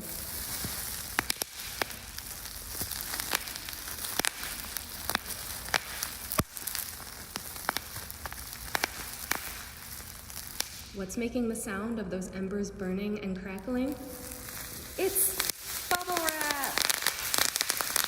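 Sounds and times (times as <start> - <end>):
bubble wrap popping: 0.0 - 11.0, 13.4 - 18.0
steady hiss: 0.0 - 11.8, 13.7 - 18.0.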